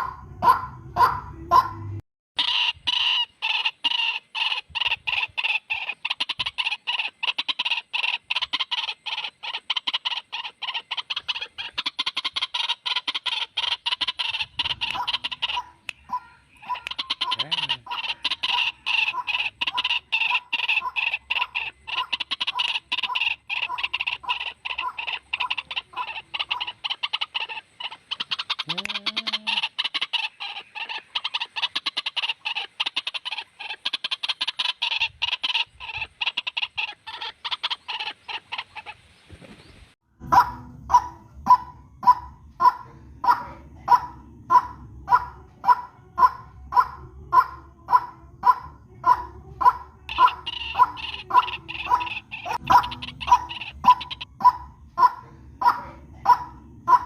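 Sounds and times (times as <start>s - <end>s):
waterhen harsh calls: 2.4s - 39.2s, 40.3s - 57.0s.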